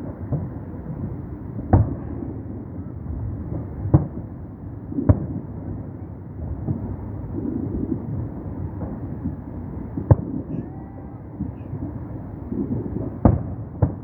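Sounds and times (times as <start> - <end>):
fireworks booming: 0.0 - 14.0
low background rumble: 0.0 - 14.0.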